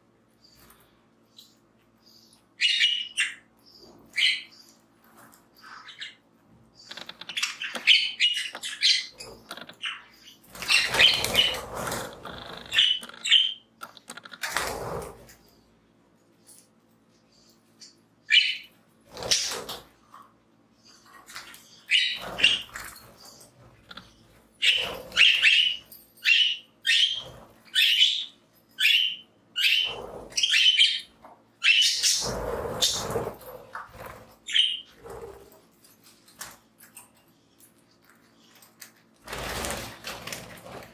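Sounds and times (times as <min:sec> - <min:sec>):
budgies chirping: 0:01.3 - 0:04.8, 0:05.6 - 0:06.2, 0:06.8 - 0:13.6, 0:17.3 - 0:19.9, 0:20.8 - 0:35.5
wings fluttering: 0:06.8 - 0:13.4, 0:14.0 - 0:15.5, 0:19.1 - 0:20.2, 0:21.1 - 0:26.0, 0:31.9 - 0:35.6, 0:38.5 - 0:40.9.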